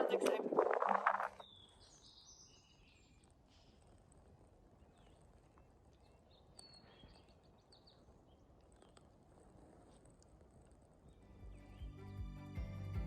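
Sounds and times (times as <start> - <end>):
faint high bird chirps: 0.6 - 3.7, 4.7 - 9.0.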